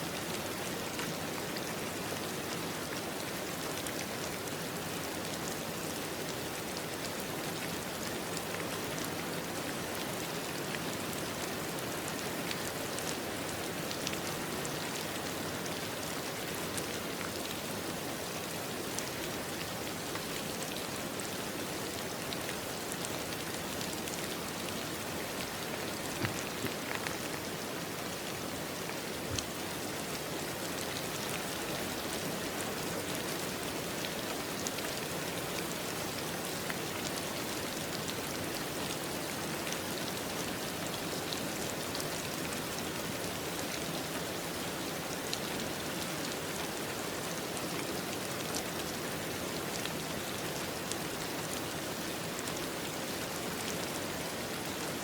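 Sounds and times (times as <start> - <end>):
rain hissing: 22.6 - 29.8.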